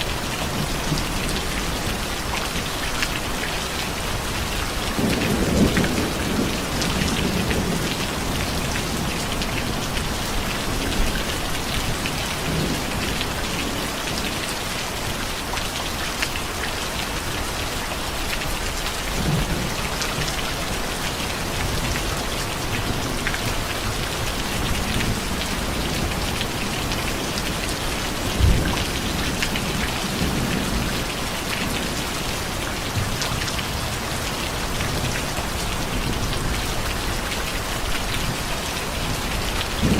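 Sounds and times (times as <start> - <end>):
steady rain falling: 0.0 - 39.9
thunder rumbles: 3.8 - 14.4, 17.1 - 37.3, 39.1 - 39.9.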